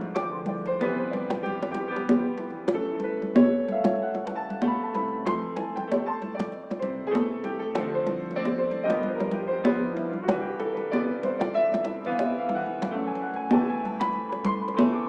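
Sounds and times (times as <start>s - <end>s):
piano piece: 0.0s - 15.0s.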